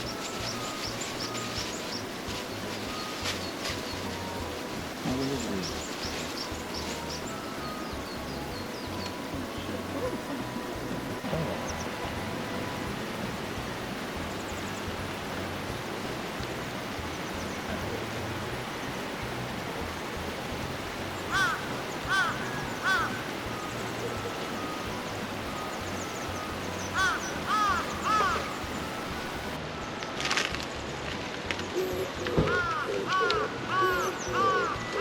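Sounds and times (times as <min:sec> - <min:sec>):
background hiss: 0:00.0 - 0:35.0
crow cawing: 0:21.3 - 0:23.3, 0:26.9 - 0:28.6, 0:32.4 - 0:35.0.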